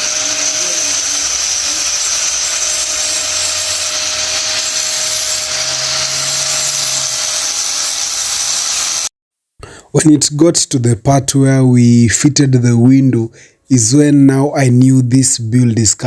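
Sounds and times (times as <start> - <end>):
power tool whining: 0.0 - 9.1.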